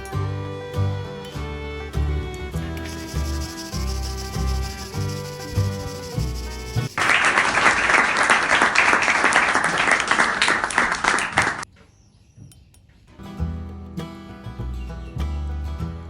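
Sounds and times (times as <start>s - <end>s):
welding arc crackling: 2.8s - 7.2s.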